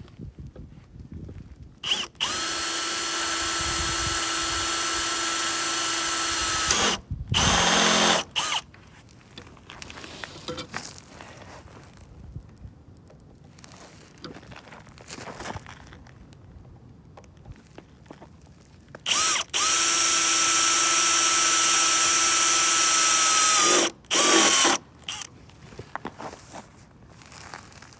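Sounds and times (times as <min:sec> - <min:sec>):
power drill whine: 0:01.8 - 0:08.6, 0:19.1 - 0:25.3.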